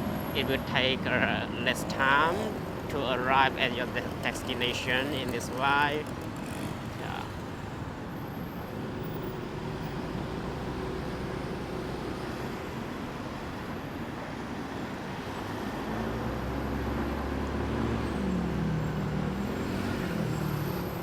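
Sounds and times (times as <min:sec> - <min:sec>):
road noise: 0:00.0 - 0:21.0
motorbike engine: 0:01.8 - 0:07.6.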